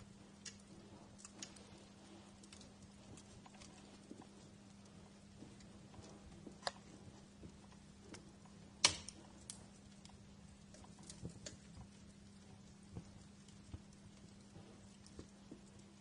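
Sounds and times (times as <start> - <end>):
wood fire crackling: 0.0 - 16.0
sharp pops and snaps: 0.3 - 16.0.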